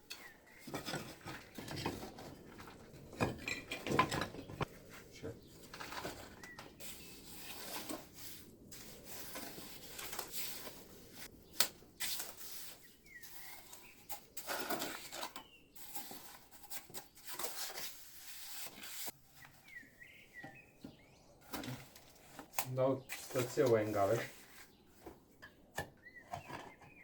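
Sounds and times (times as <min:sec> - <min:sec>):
scraping on stone: 0:00.1 - 0:19.8.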